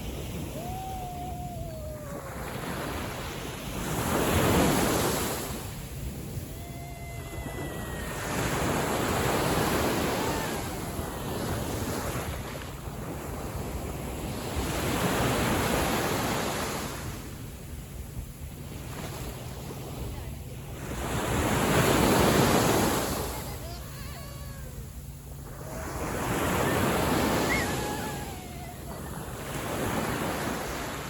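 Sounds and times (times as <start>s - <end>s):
wind buffeting microphone: 0.0s - 16.4s
small waves washing ashore: 0.0s - 31.0s.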